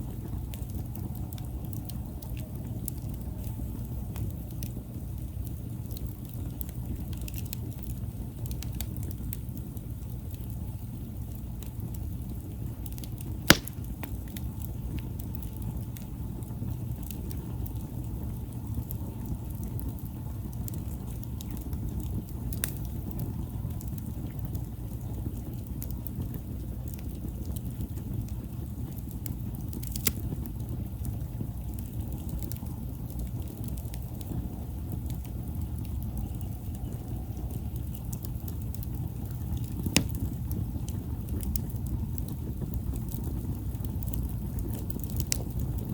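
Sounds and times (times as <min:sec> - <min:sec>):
campfire low rush: 0:00.0 - 0:45.9
fire crackles: 0:00.0 - 0:45.9
sharp loud pop: 0:13.5 - 0:14.0.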